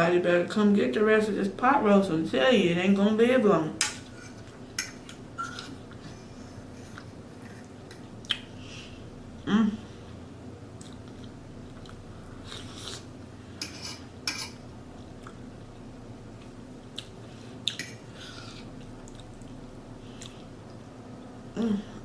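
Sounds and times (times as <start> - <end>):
faint steady hum: 0.0 - 22.0
chewing food: 10.8 - 13.1, 16.4 - 20.8.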